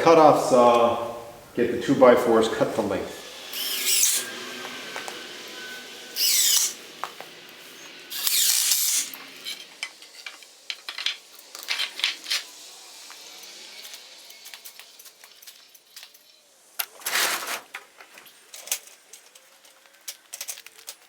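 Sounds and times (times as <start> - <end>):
scraping rustling handling noise: 16.9 - 21.0.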